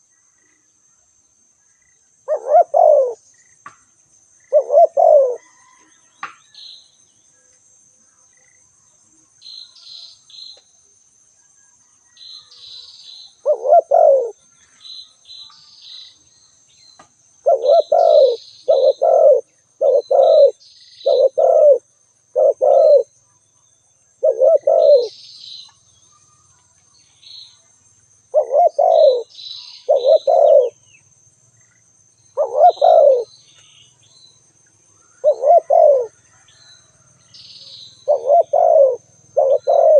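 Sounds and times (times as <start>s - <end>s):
dove cooing: 2.3s - 3.2s, 4.5s - 5.9s, 13.4s - 14.4s, 17.4s - 23.1s, 24.2s - 25.2s, 28.3s - 30.8s, 32.4s - 33.3s, 35.1s - 36.4s, 37.9s - 39.9s
small bird chirping: 12.1s - 27.7s, 28.3s - 39.9s.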